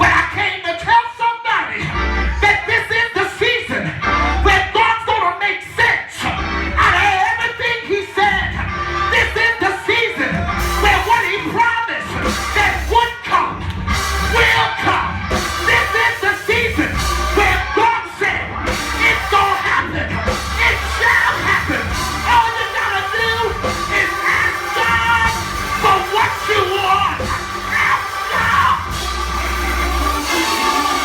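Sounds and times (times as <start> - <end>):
church music: 0.0 - 31.0
voices singing and shouting: 0.0 - 31.0
steady low bass: 10.4 - 11.2, 12.2 - 14.6, 15.2 - 17.7, 18.5 - 31.0.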